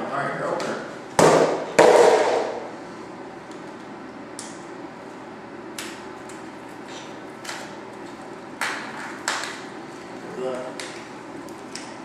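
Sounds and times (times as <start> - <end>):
loud knock: 1.2 - 2.6.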